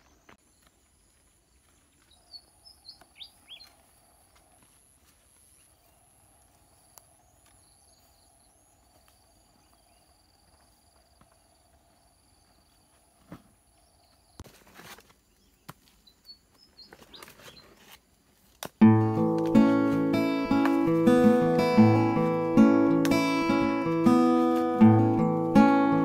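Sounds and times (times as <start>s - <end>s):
high-pitched background tone: 18.8s - 26.0s.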